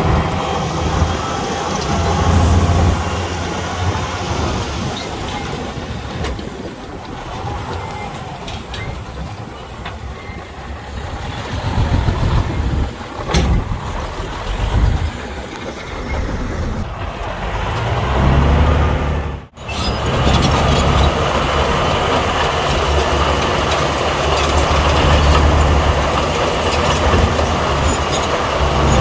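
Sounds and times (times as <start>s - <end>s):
diesel machinery engine rumble: 0.0s - 29.0s.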